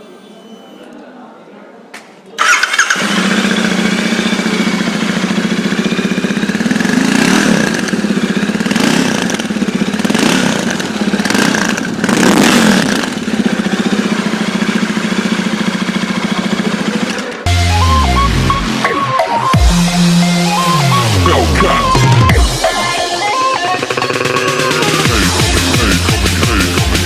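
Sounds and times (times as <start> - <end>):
motorcycle engine idling: 2.4 - 18.6, 19.6 - 27.0
throttle blips: 17.5 - 25.8.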